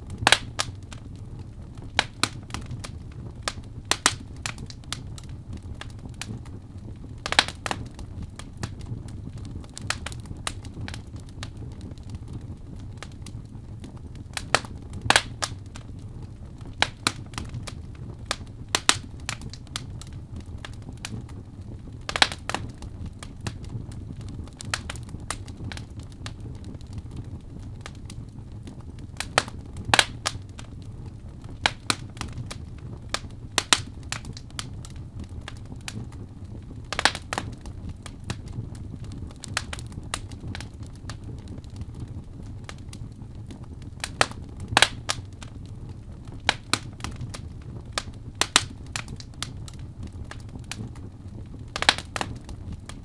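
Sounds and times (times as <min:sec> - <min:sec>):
fire crackling in fireplace: 0:00.0 - 0:53.0.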